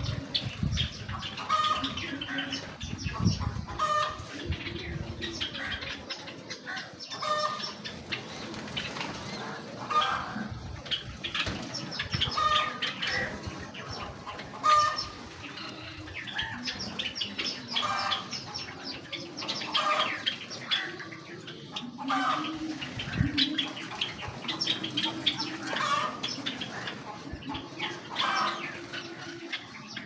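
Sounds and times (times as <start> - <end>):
sparrows chirping: 0.0 - 30.0
wings fluttering: 7.9 - 9.3.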